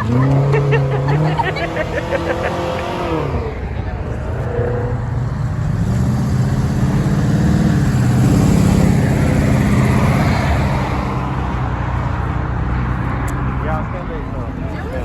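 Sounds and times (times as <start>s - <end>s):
car engine revving hard: 0.0s - 11.6s.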